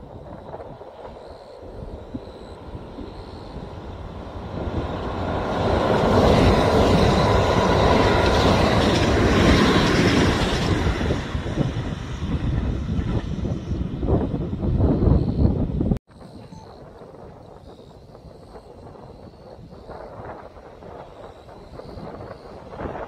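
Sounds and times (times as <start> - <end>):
train passing rail noise: 0.0 - 15.7.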